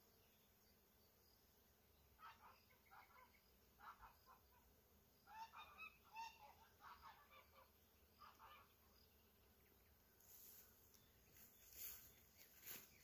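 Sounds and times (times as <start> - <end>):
bird calls: 2.0 - 13.0.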